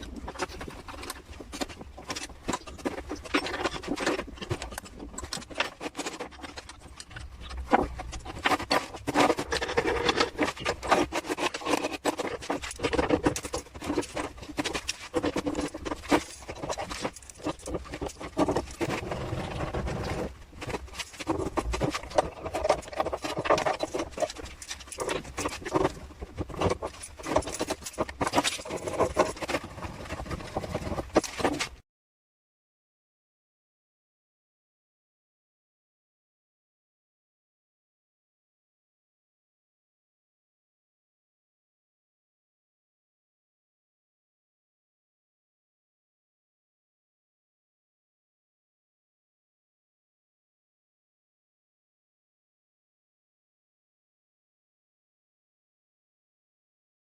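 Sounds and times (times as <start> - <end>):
scraping of hand tools: 0.0 - 31.8.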